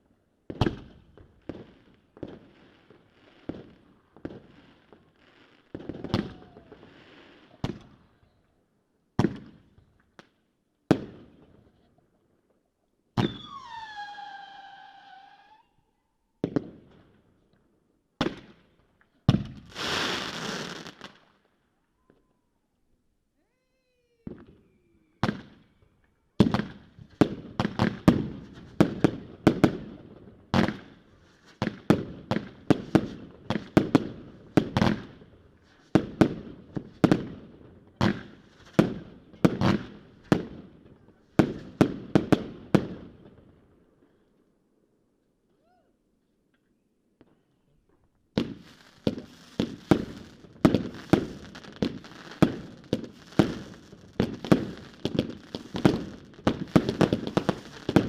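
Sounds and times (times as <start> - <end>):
firework whistle: 13.2 - 16.0, 24.2 - 26.1
firework rushing hiss: 19.6 - 21.0
firework bangs: 48.3 - 58.0.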